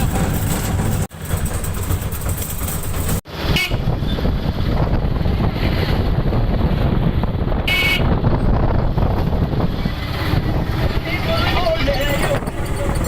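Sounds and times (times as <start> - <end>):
road traffic: 0.0 - 13.0
wind buffeting microphone: 2.8 - 13.0
vehicle horn beeps: 3.5 - 3.9, 7.7 - 8.1.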